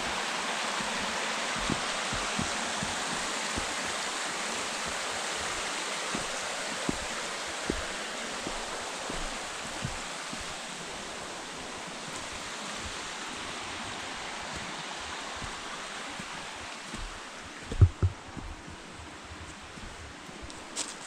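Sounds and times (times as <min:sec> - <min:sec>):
soft low thumps: 0:00.0 - 0:20.8
stream rushing over rocks: 0:00.0 - 0:21.0.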